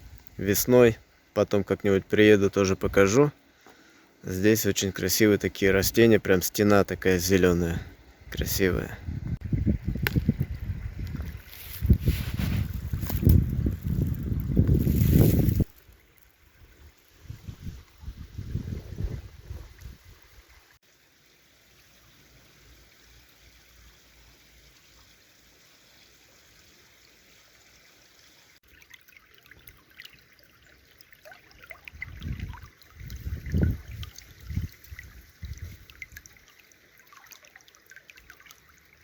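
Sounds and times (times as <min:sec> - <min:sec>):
stream trickling: 0:00.0 - 0:39.0
low rumbles on microphone: 0:09.0 - 0:15.7, 0:17.3 - 0:20.1, 0:32.0 - 0:34.8
splashy ticks of water: 0:28.6 - 0:39.0.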